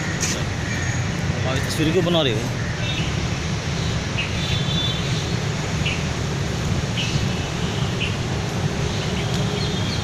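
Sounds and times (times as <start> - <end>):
birds chirping: 3.8 - 6.1, 6.8 - 10.0.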